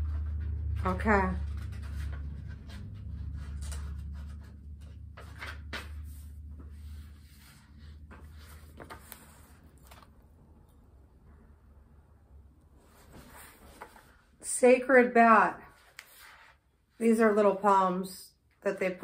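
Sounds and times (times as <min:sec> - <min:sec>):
book pages rustling: 0:00.0 - 0:10.8, 0:12.8 - 0:14.4, 0:15.7 - 0:16.7
low steady hum: 0:00.0 - 0:16.0.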